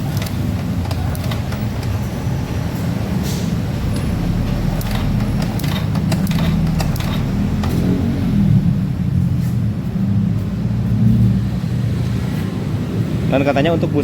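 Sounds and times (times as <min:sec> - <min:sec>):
small motorcycle engine running: 0:03.8 - 0:08.1.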